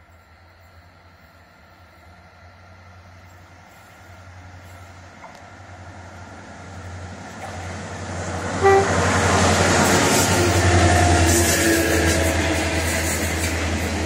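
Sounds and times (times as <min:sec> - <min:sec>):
diesel locomotive engine hum: 0:00.0 - 0:14.0
rail noise: 0:00.0 - 0:14.0
locomotive horn toot: 0:08.6 - 0:09.2.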